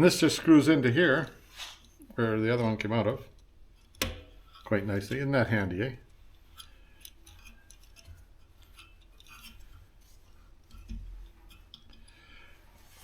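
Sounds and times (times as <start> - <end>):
metallic ticks and clicks: 2.6 - 12.3.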